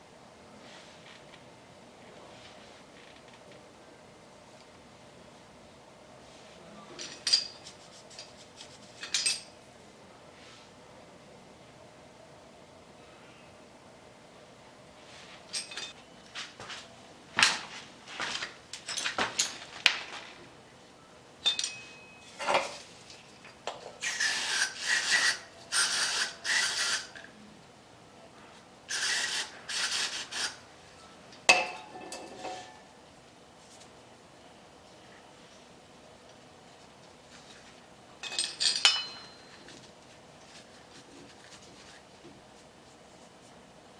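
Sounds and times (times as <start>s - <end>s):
small metal parts clinking: 7.0s - 9.5s, 15.5s - 16.0s, 21.4s - 27.3s, 38.2s - 39.8s
metal scraping: 31.5s - 32.9s.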